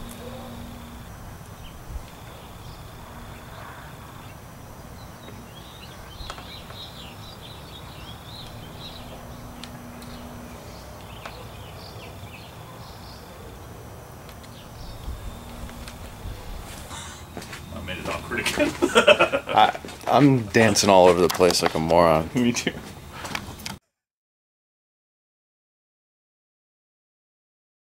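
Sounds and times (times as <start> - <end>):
low background rumble: 0.0 - 11.6
birds chirping: 0.0 - 21.3.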